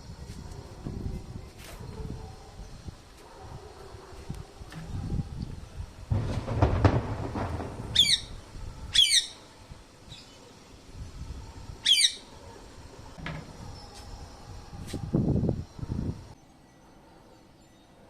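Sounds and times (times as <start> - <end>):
low rustling and knocking: 6.1 - 8.0
parrot squawking: 9.0 - 9.4, 11.8 - 12.3.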